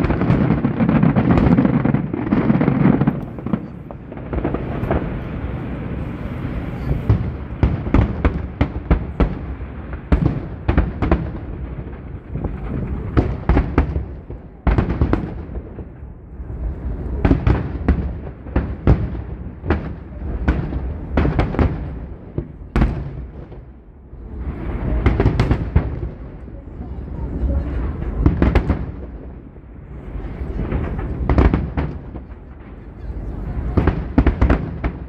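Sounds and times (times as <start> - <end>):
fireworks bangs: 0.0 - 35.0.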